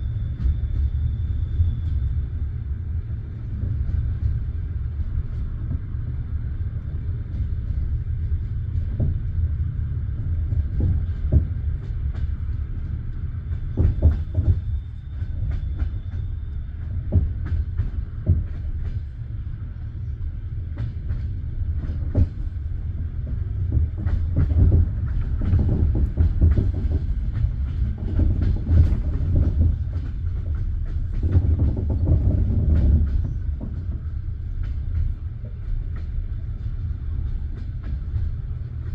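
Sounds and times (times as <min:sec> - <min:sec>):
train carriage rumbling: 0:00.0 - 0:38.9
wheels clacking over rail joints: 0:20.7 - 0:38.9.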